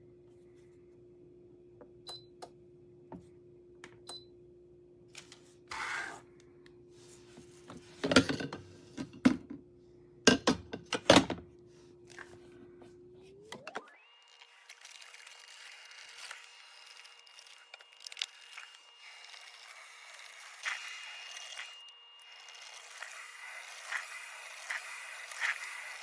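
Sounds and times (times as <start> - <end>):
kitchen parts clattering and knocking: 8.0 - 9.5, 10.3 - 11.4.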